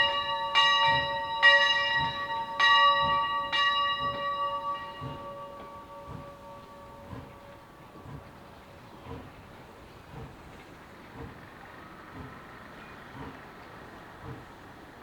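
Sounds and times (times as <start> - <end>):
locomotive bell ringing: 0.0 - 8.1.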